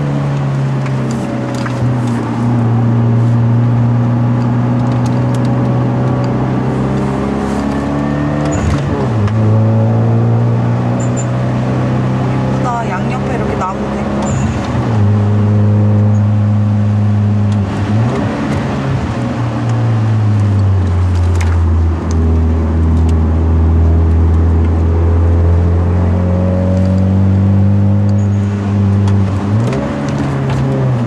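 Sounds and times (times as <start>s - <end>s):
car engine revving: 0.0s - 31.0s
road noise hiss: 1.1s - 3.6s.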